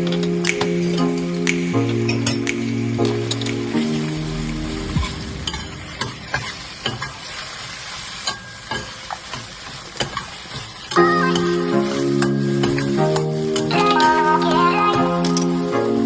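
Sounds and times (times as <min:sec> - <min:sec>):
background music: 0:00.0 - 0:07.2, 0:10.9 - 0:16.0.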